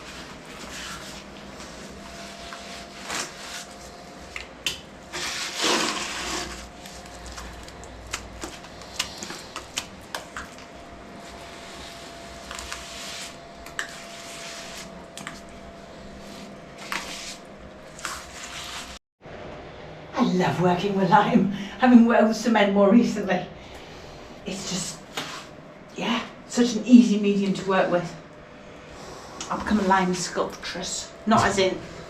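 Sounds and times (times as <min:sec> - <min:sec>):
trowel scraping wall: 0:05.1 - 0:07.4.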